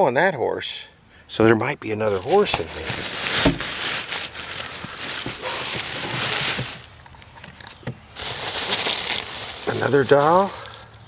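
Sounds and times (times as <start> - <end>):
rustling of toys in a box: 2.0 - 10.8.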